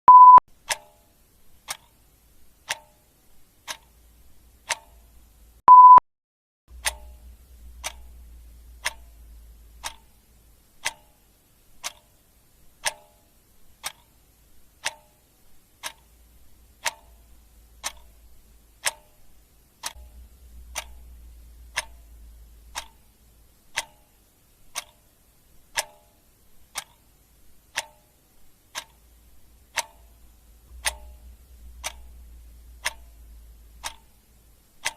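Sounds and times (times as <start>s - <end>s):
short high beep: 0.0s - 0.4s, 5.7s - 6.0s
clock ticking: 0.1s - 6.0s, 6.7s - 34.9s.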